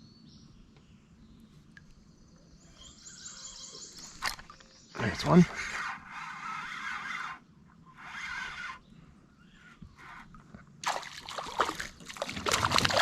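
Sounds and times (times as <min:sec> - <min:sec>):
fishing reel whirring: 0:05.6 - 0:08.8.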